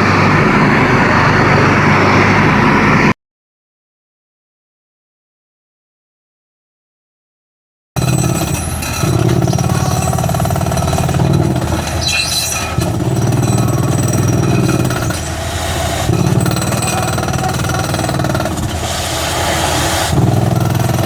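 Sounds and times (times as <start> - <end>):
drilling rig hammering: 8.0 - 21.0.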